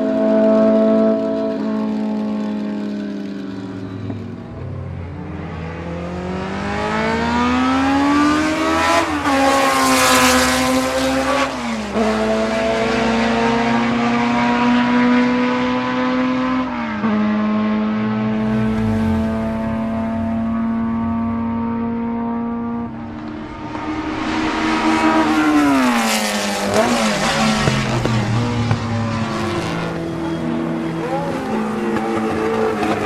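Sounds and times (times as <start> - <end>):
racing car engine passing: 16.3 - 30.4.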